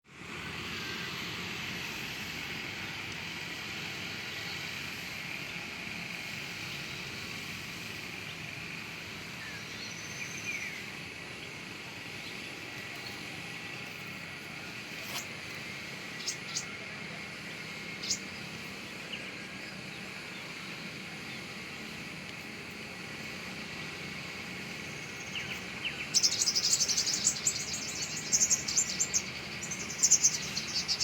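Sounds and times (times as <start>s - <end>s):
constant high hiss: 0.1s - 31.0s
faint bird chirps: 16.1s - 16.8s, 17.9s - 21.5s, 24.8s - 31.0s.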